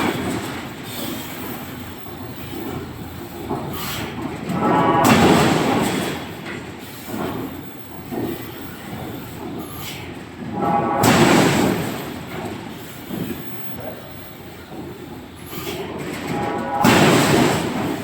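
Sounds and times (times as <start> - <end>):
heavy machinery rumbling clatter: 0.0 - 18.0.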